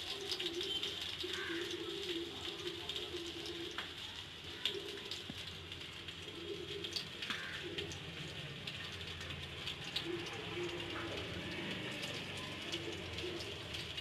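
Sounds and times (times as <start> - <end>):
bird cooing: 0.2 - 3.8, 4.5 - 5.3, 6.1 - 8.2, 9.9 - 11.7, 12.4 - 13.8.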